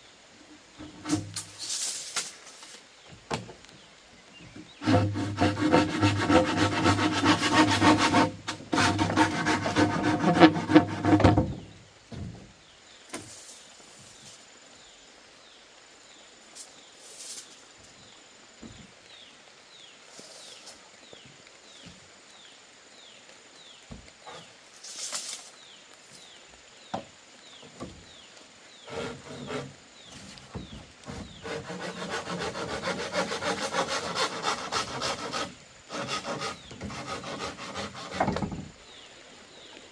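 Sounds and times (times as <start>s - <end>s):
saw rasping through bamboo: 0.8s - 1.5s, 4.8s - 11.6s, 28.8s - 29.8s, 31.0s - 38.6s.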